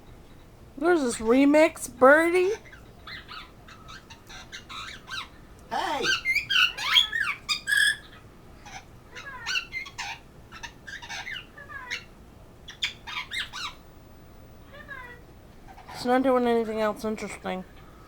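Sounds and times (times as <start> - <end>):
parrot squawking: 2.5 - 13.8.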